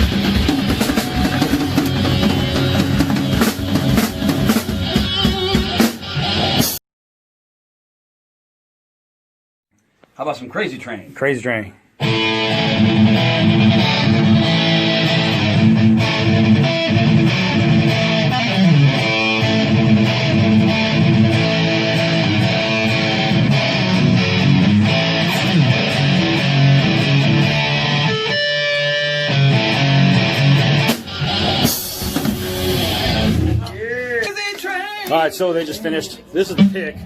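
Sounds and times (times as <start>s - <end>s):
bass guitar: 0.0s - 6.8s, 12.0s - 34.1s
electric guitar riff: 0.0s - 6.8s, 12.0s - 33.8s.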